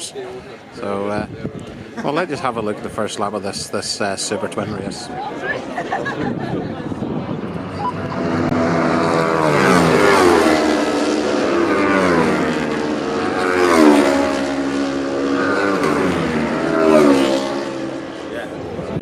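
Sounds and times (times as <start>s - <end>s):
racing motorcycles passing at speed: 4.2s - 19.0s.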